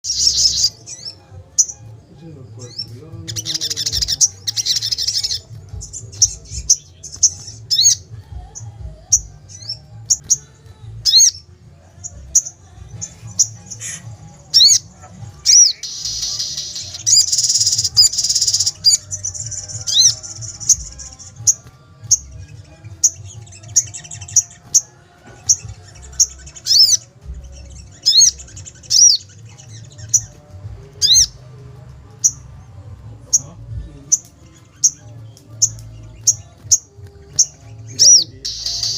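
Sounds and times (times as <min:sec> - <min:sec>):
songbird trilling and chipping: 0:00.0 - 0:01.9, 0:02.7 - 0:08.1, 0:09.1 - 0:31.5, 0:33.3 - 0:38.9
bird calling sharp chips: 0:15.5 - 0:19.0, 0:37.4 - 0:38.9.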